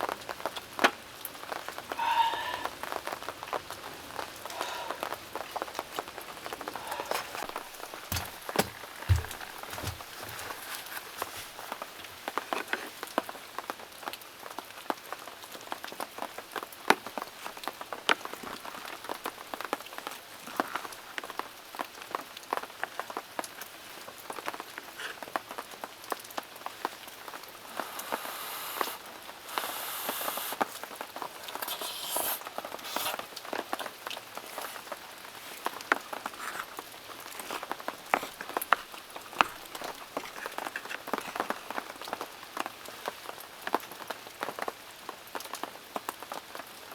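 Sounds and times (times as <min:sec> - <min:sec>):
bright hiss: 0:27.8 - 0:30.6.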